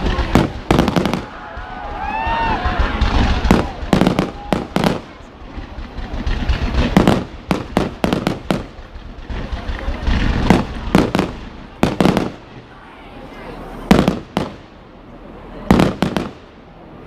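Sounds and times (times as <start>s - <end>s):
fireworks bangs: 0.0s - 12.8s, 13.7s - 16.8s
low rumble: 0.0s - 13.2s.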